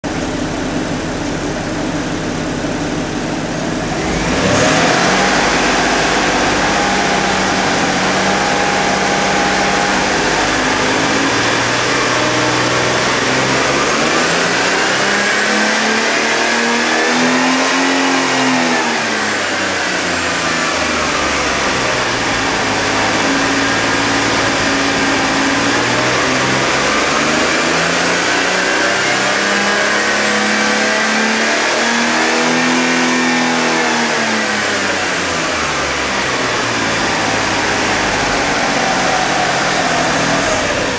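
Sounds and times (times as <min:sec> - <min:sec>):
car engine idling and revving: 0:00.0 - 0:40.9.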